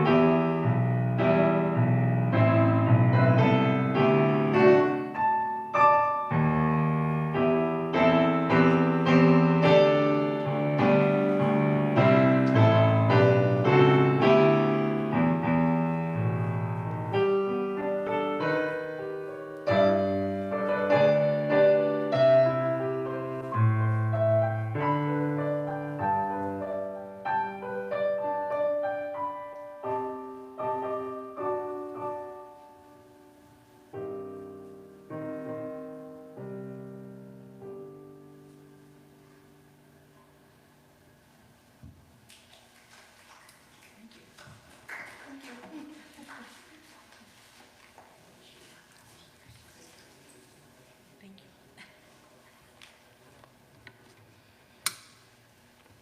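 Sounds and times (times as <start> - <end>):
slow solo piano: 0.0 - 42.1.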